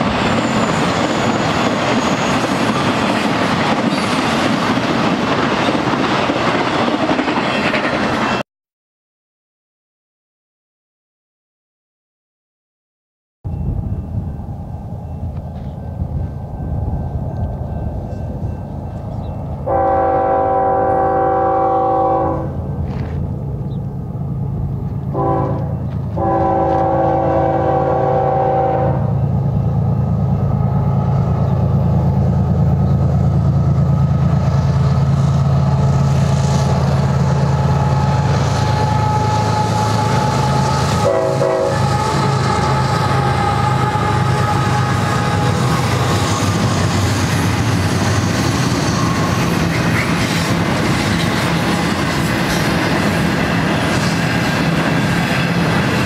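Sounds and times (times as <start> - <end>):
locomotive engines rumbling: 0.0 - 8.4, 13.5 - 56.0
train cars rumbling and clattering: 0.0 - 8.4, 13.5 - 56.0
locomotive air horn blasts: 19.6 - 22.6, 25.1 - 29.2, 38.6 - 46.6.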